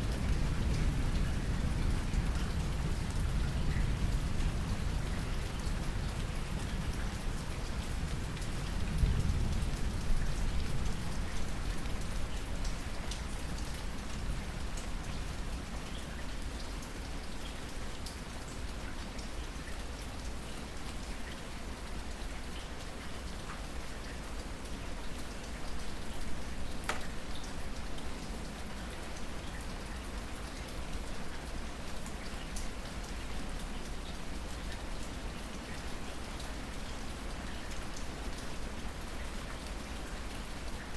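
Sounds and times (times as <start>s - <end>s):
rain falling: 0.0s - 40.9s
raindrops ticking: 26.1s - 28.0s.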